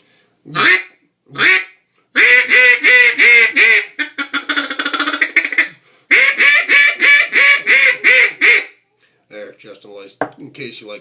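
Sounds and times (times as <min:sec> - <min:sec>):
duck call quacks: 0:00.5 - 0:08.8
duck call stuttering chatter: 0:02.2 - 0:08.7.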